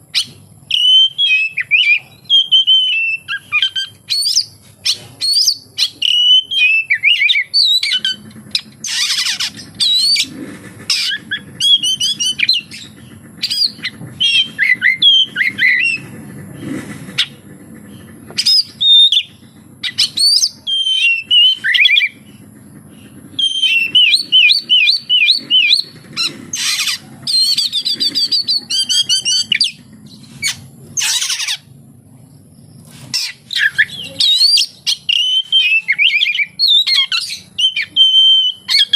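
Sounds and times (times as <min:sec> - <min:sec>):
songbird singing whistled phrases: 0:00.1 - 0:10.3, 0:10.9 - 0:16.1, 0:18.4 - 0:22.2, 0:23.4 - 0:25.9, 0:26.7 - 0:29.8, 0:33.1 - 0:38.9.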